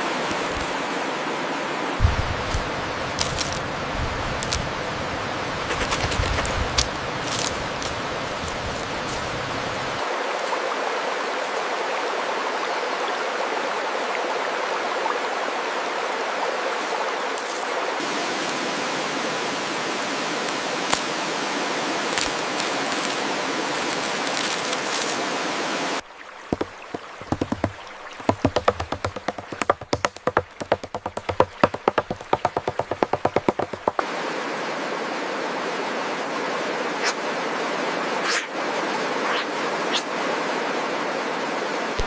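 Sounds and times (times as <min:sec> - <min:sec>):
running water rushing: 0:00.0 - 0:42.0
sharp irregular taps: 0:26.5 - 0:34.0.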